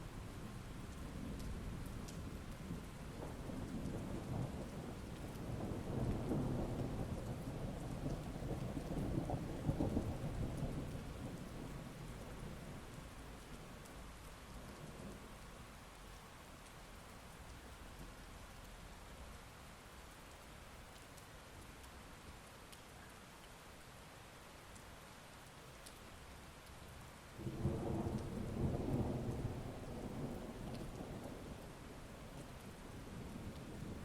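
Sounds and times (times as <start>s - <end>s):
heavy rain: 0.0s - 34.0s
rumble of thunder: 0.4s - 13.6s, 27.4s - 34.0s.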